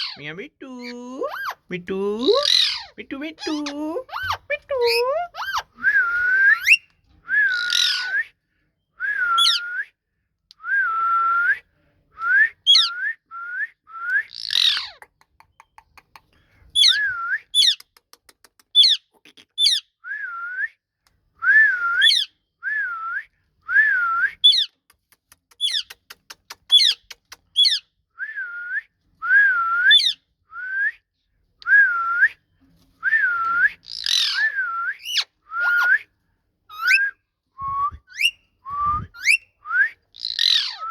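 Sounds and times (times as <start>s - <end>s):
harsh parrot calls: 0.0s - 0.2s, 0.8s - 5.8s, 7.4s - 8.2s, 14.3s - 15.1s, 33.8s - 36.0s, 40.1s - 40.9s
parrot whistling calls: 5.4s - 6.8s, 7.4s - 8.2s, 9.4s - 9.6s, 33.9s - 36.1s, 36.7s - 37.2s, 37.9s - 38.4s, 39.0s - 39.5s, 40.2s - 40.9s.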